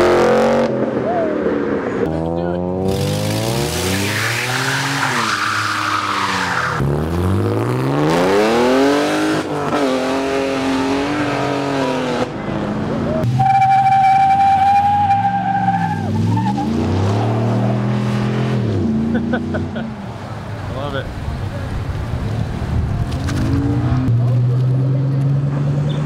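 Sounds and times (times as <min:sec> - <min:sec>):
car engines revving: 0:00.0 - 0:26.0
tires squealing: 0:02.8 - 0:07.6, 0:13.0 - 0:19.3.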